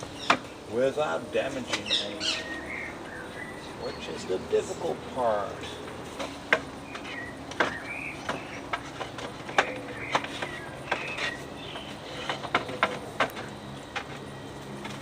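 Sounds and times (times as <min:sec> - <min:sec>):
bird chirps: 0:01.7 - 0:04.7, 0:06.8 - 0:12.8.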